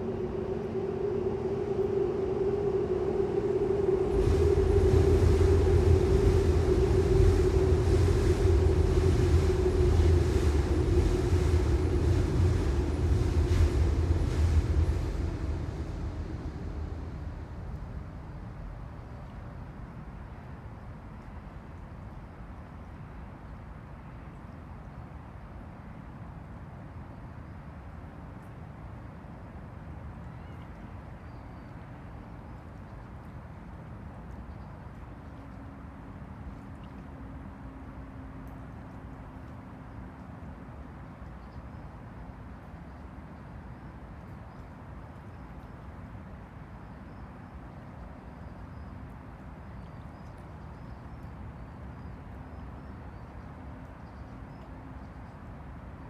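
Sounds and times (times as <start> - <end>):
low drone: 0.0 - 19.9.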